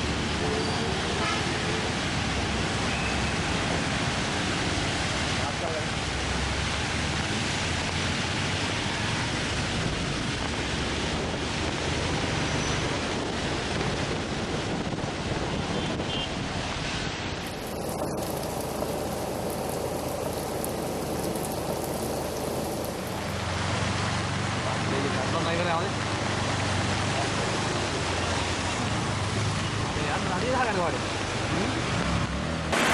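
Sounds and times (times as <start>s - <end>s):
heavy rain: 0.0s - 32.9s
running water: 17.4s - 31.2s.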